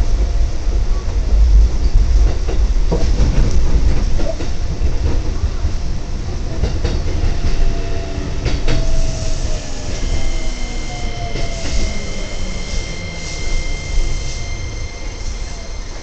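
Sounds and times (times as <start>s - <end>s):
train wheels rumbling on rails: 0.0s - 16.0s
wheel squeal: 8.0s - 16.0s
high steady tone: 8.9s - 16.0s.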